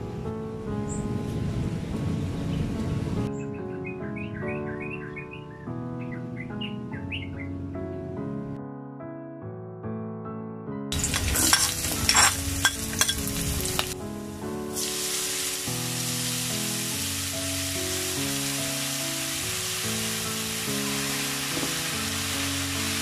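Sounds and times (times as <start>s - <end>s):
background music: 0.0s - 23.0s
mushrooms sizzling in oil: 10.9s - 14.0s, 14.7s - 23.0s.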